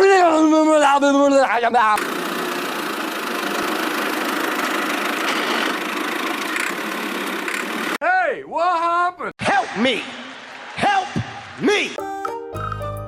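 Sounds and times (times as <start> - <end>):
toy tractor motor whirring: 2.0 - 8.0.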